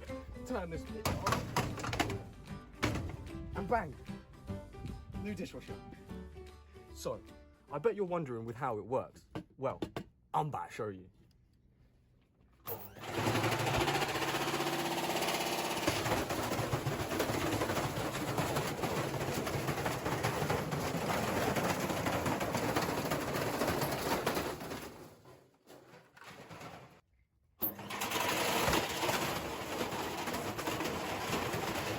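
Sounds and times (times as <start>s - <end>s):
washing machine motor hum: 12.7s - 24.0s, 27.6s - 31.9s
fast mechanical rattling: 12.7s - 25.3s, 27.6s - 31.9s.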